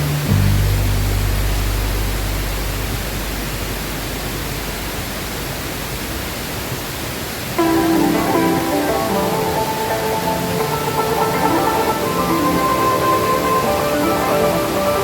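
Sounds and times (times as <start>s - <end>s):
waterfall rushing: 0.0s - 15.0s
background music: 7.6s - 15.0s.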